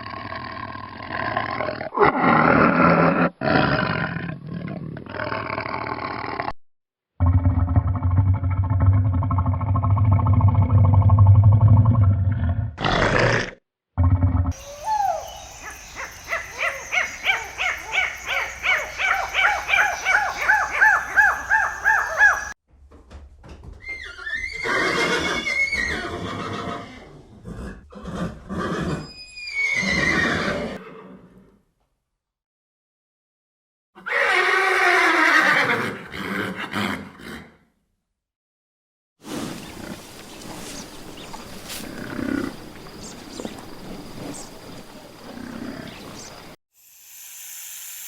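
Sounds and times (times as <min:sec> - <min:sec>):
low rumbling animal call: 0:39.3 - 0:46.6.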